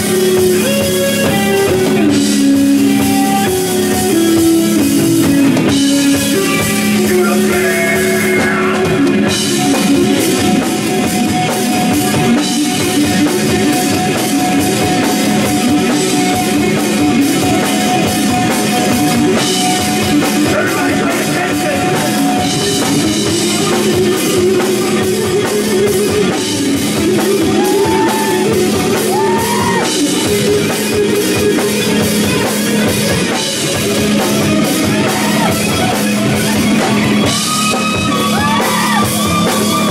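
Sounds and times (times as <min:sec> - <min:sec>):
drum kit steady beat: 0:00.0 - 0:39.9
electric guitar: 0:00.0 - 0:39.9
person singing: 0:06.3 - 0:09.9, 0:20.2 - 0:31.7.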